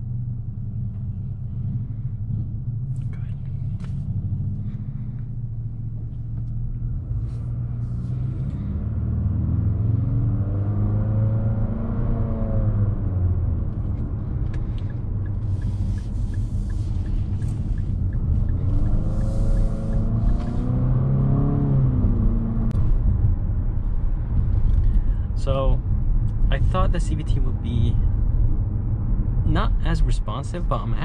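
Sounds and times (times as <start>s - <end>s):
car engine accelerating: 0.0s - 31.0s
road rumble: 0.0s - 31.0s
faint regular ticking: 14.6s - 20.5s.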